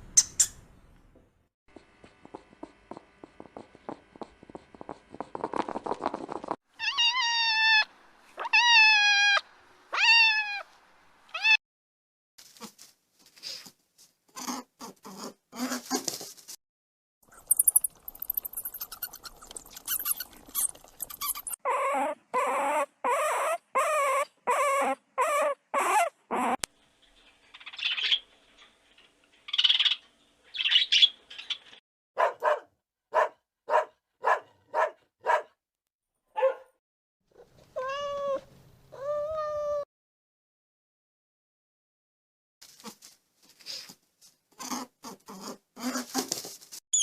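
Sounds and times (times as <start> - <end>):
animal squeaks and yelps: 0.2 - 0.6, 6.8 - 10.7, 17.3 - 26.6, 39.0 - 39.8
animal whines: 6.8 - 10.6, 17.3 - 26.6.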